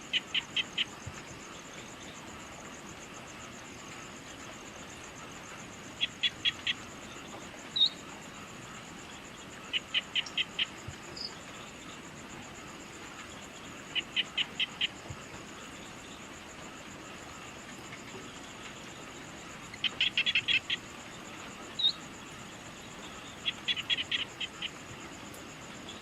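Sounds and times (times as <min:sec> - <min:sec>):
pulsing insect trill: 0:00.0 - 0:26.0.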